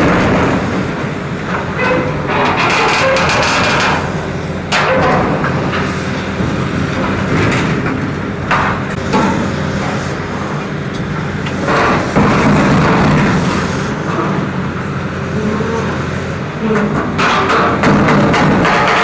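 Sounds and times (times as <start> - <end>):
diesel heavy machinery running: 0.0 - 19.0
metal clanks and knocks: 1.5 - 10.0, 10.9 - 14.4, 16.6 - 19.0.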